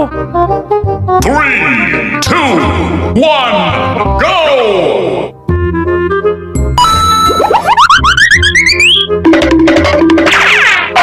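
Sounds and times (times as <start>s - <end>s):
upbeat background music: 0.0s - 11.0s
cartoon rising pitch effect: 6.8s - 9.1s.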